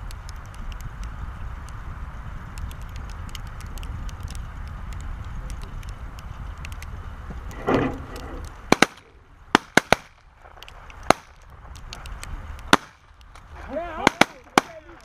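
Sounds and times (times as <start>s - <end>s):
wind noise on microphone: 0.0s - 15.0s
shotgun blasts: 8.7s - 10.2s, 12.7s - 13.0s, 14.0s - 14.9s.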